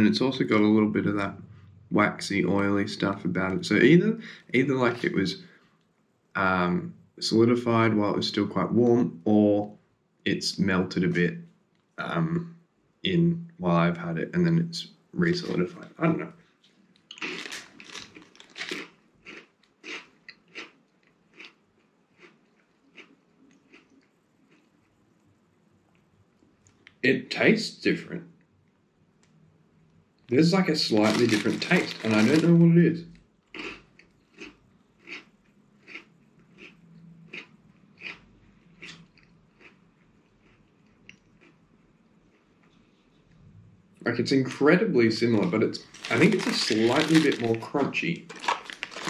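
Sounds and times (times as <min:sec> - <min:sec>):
chewing crunchy biscuit: 0:17.1 - 0:25.3, 0:30.8 - 0:32.5, 0:33.5 - 0:43.2, 0:45.3 - 0:49.0.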